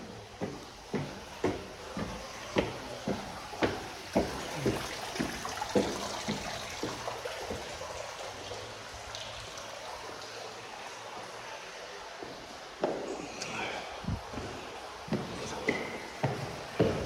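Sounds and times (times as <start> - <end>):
footsteps on hard floor: 0.4 - 7.7, 14.1 - 17.0.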